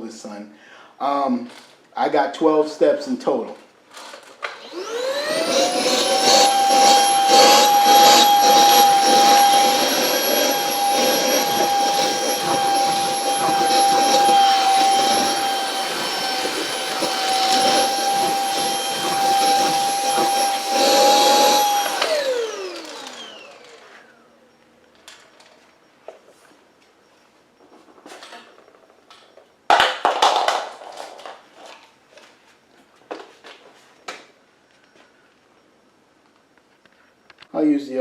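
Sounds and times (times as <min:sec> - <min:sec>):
stick vacuum motor whining: 0:04.4 - 0:25.7.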